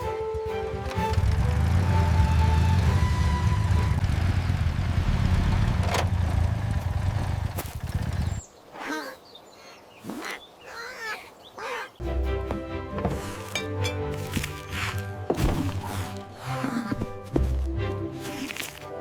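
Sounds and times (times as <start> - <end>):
background music: 0.0 - 4.8, 12.0 - 19.0.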